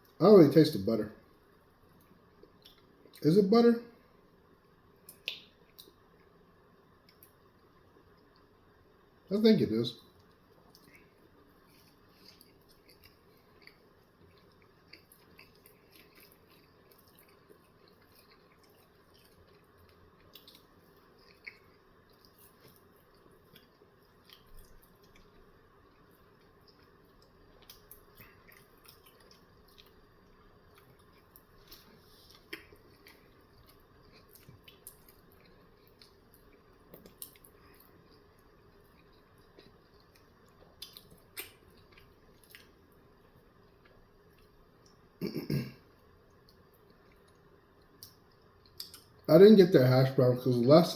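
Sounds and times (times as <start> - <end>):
person chewing food: 1.9 - 3.2, 10.1 - 45.2, 45.9 - 49.3.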